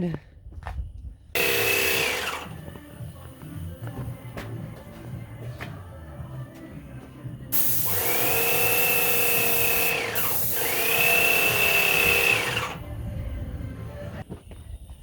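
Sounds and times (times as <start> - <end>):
power tool whining: 1.4 - 3.9, 7.6 - 14.2
loud hiss: 7.5 - 12.8.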